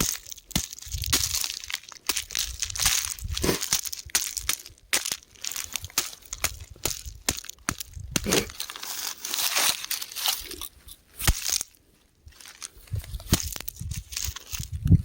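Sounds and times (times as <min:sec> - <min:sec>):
sharp rock crack: 0:00.0 - 0:08.6
rocks crumbling and crunching: 0:00.0 - 0:15.0.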